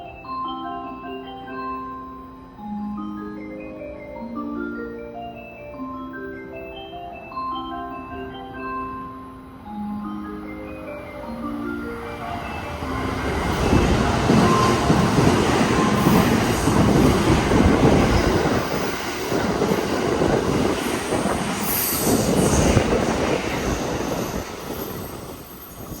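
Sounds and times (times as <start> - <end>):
train wheels rumbling on rails: 12.3 - 26.0.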